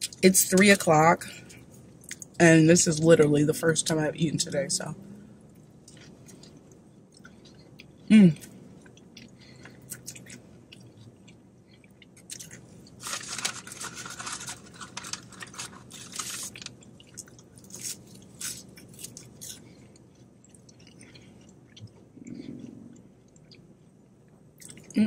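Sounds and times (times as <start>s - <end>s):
person chewing food: 5.4s - 25.0s.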